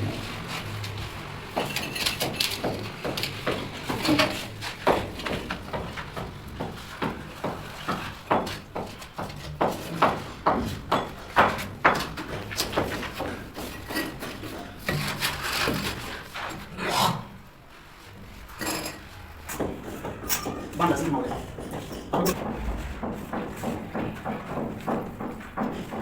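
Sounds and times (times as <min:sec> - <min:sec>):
irregular knocks and taps: 0:01.5 - 0:14.3, 0:19.6 - 0:26.0.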